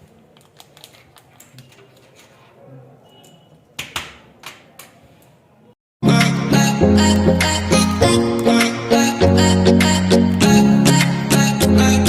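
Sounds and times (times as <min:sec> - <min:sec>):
smartphone packaging clicks and rustling: 0:00.0 - 0:02.3.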